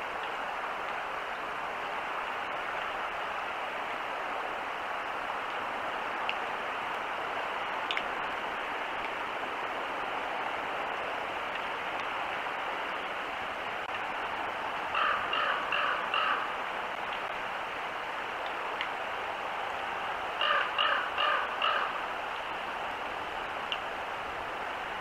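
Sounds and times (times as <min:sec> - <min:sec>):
outdoor hiss: 0:00.0 - 0:25.0
bird calling: 0:14.9 - 0:16.6, 0:20.4 - 0:22.0.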